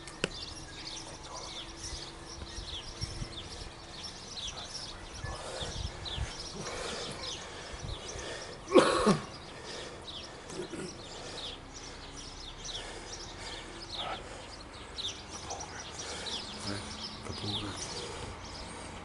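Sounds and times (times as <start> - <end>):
birds chirping: 0.0 - 19.0
person coughing: 8.7 - 9.4.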